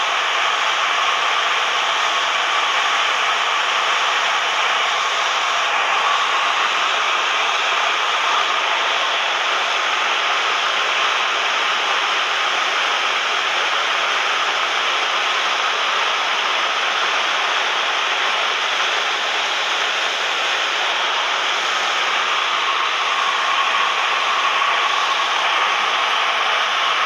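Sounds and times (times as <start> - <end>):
small plane cabin drone: 18.2 - 27.0.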